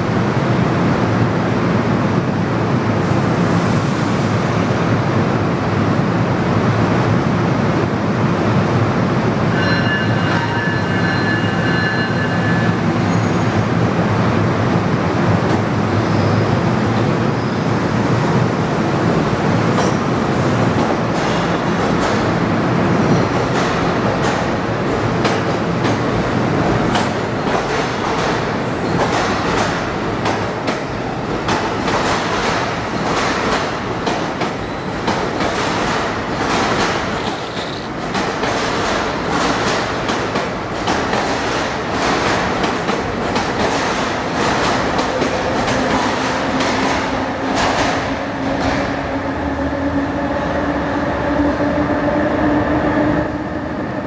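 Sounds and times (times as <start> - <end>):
train wheels clacking over rail joints: 26.8 - 48.9.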